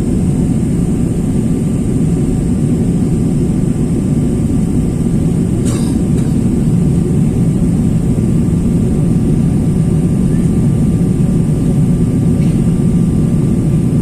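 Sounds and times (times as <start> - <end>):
jet airliner cabin rumble: 0.0 - 14.0.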